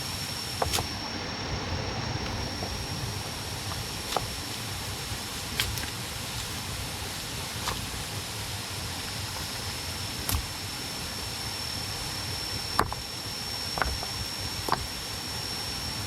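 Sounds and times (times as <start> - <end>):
outdoor hiss: 0.0 - 16.0.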